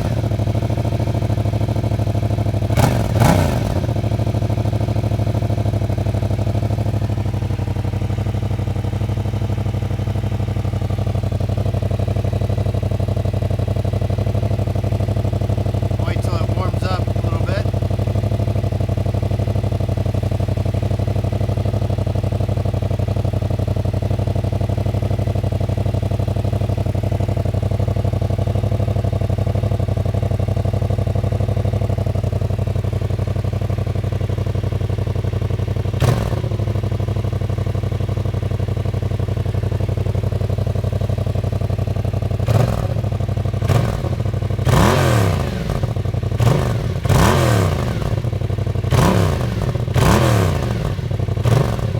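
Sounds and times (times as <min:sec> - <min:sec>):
motorcycle engine idling: 0:00.0 - 0:51.9
engine revving: 0:02.7 - 0:04.1, 0:16.0 - 0:17.7, 0:42.5 - 0:43.0, 0:43.6 - 0:51.9.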